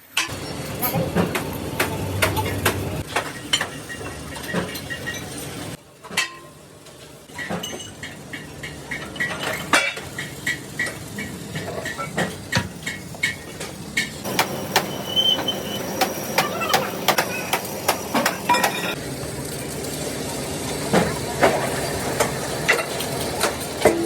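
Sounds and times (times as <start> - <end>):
hammer striking sheet metal: 14.0 - 19.0.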